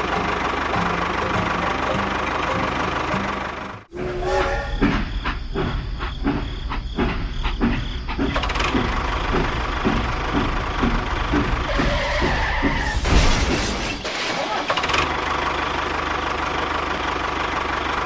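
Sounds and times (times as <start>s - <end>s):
hissing scraping noise: 3.9s - 6.9s
small engine with rhythmic knock: 6.2s - 12.9s.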